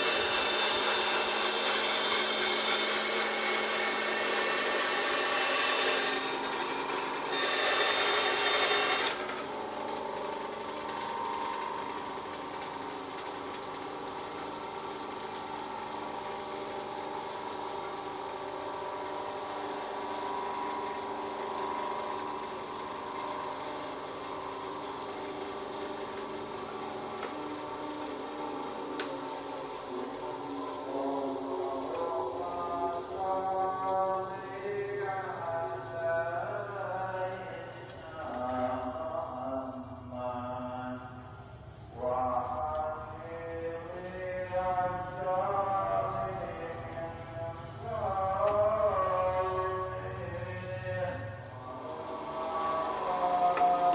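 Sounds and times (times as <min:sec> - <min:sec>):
bandsaw cutting wood: 0:00.0 - 0:36.2, 0:51.6 - 0:53.9.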